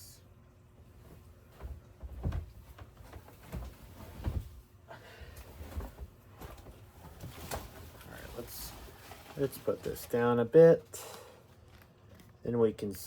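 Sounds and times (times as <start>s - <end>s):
knocks and thumps: 1.5s - 4.6s.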